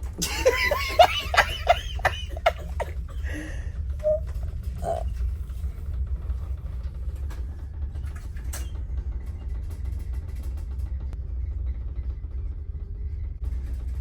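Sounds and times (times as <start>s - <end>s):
ship engine rumbling: 0.0s - 7.6s.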